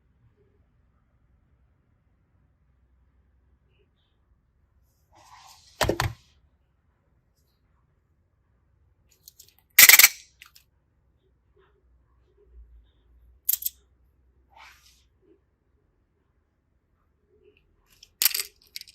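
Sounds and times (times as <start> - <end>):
small hard objects clacking: 13.5 - 13.7, 18.0 - 18.9.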